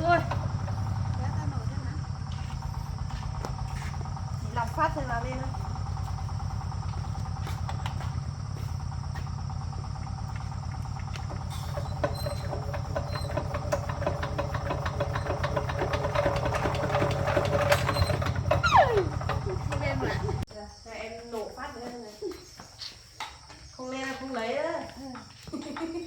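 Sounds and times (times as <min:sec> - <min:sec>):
tractor engine knocking: 0:00.0 - 0:20.5.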